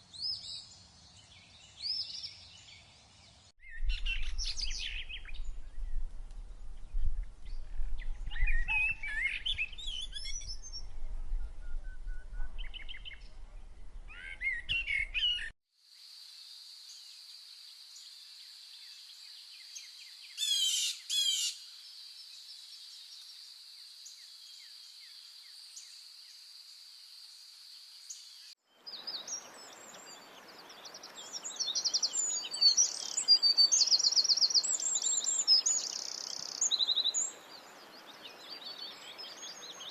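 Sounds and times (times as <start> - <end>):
bird chirps and calls: 8.0 - 10.9, 14.1 - 15.5, 28.9 - 39.9.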